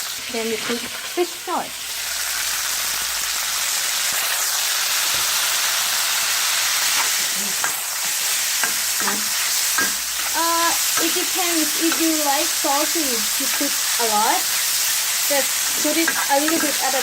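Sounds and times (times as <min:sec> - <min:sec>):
meat sizzling in a pan: 0:00.0 - 0:17.0
turner scraping a pan: 0:06.9 - 0:11.2, 0:13.2 - 0:17.0.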